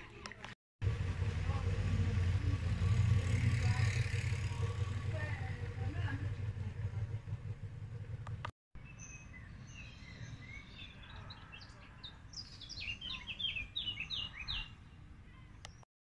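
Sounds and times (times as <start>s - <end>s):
songbirds chirping: 0.0s - 15.9s
low steady rumble: 0.8s - 8.5s.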